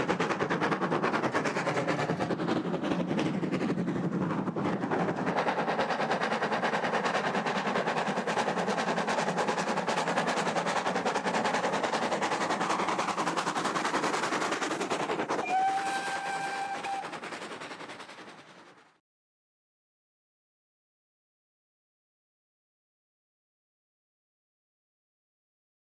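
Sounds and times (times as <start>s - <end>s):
steam locomotive exhaust beats: 0.0s - 19.0s
steam locomotive whistle: 15.4s - 17.2s.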